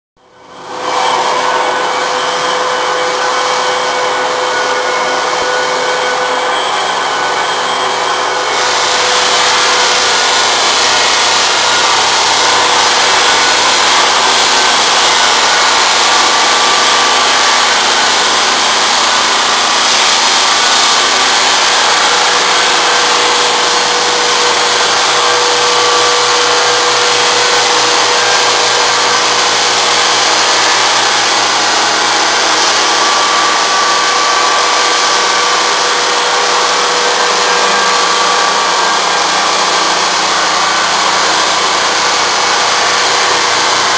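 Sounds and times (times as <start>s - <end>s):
floor sander running: 0.2s - 43.9s.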